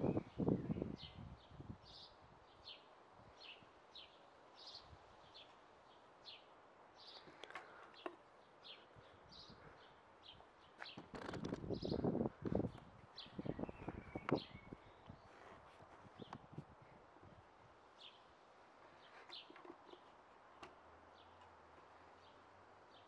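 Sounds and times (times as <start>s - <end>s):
small bird chirping: 0.0s - 15.4s.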